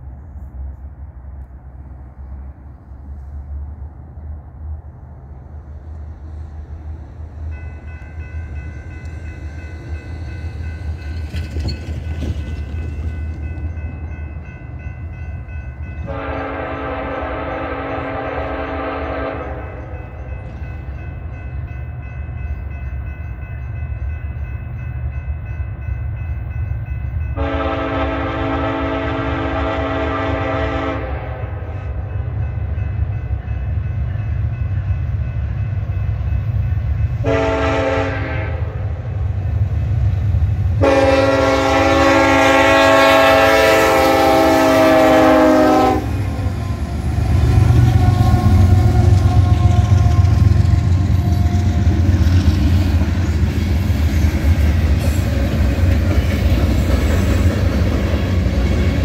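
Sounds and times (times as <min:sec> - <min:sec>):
wheels clattering over rail joints: 0:10.7 - 0:14.2
locomotive air horn blasts: 0:16.0 - 0:20.0, 0:27.4 - 0:32.0, 0:37.2 - 0:38.8, 0:40.8 - 0:46.5, 0:47.8 - 0:50.5.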